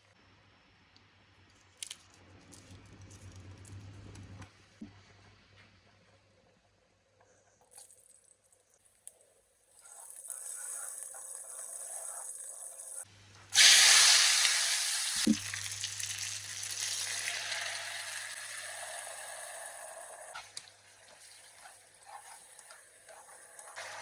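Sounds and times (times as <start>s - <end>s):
food sizzling in hot oil: 13.6s - 24.0s.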